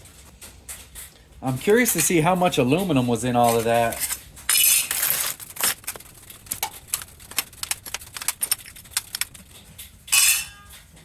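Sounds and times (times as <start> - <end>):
aluminum scrap clinking: 3.4 - 10.9.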